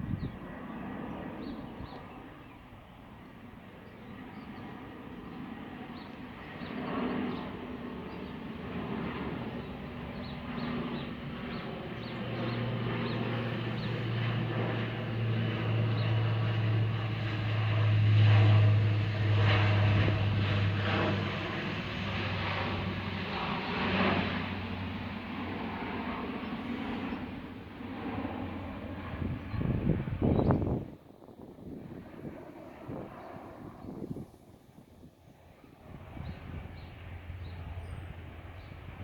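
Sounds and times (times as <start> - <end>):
deep turboprop drone: 8.2 - 31.0, 35.8 - 39.0.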